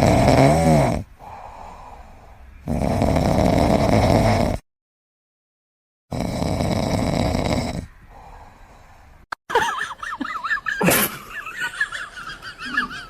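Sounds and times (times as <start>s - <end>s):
pet snoring loudly: 0.0s - 1.7s, 2.6s - 4.6s, 6.1s - 8.3s.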